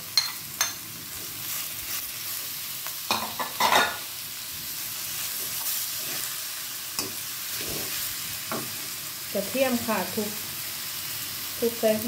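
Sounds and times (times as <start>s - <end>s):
meat sizzling in a wok: 0.0s - 12.0s
metal spatula scraping: 5.2s - 8.9s.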